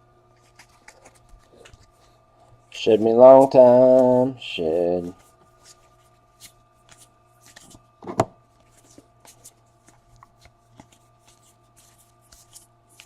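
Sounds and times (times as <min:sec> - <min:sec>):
faint steady hum: 0:00.0 - 0:13.0
cards flipping papery swishes: 0:00.4 - 0:02.2, 0:02.8 - 0:07.9, 0:08.6 - 0:13.0.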